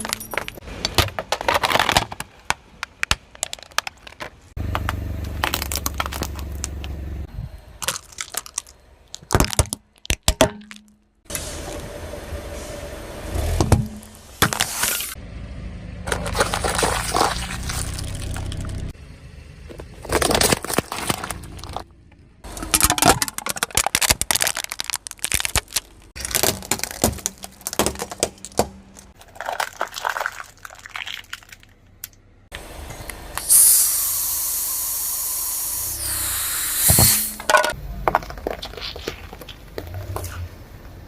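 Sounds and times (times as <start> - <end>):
objects cracking under tyres: 0.0 - 11.3, 16.0 - 19.0, 19.6 - 32.2, 37.4 - 41.0.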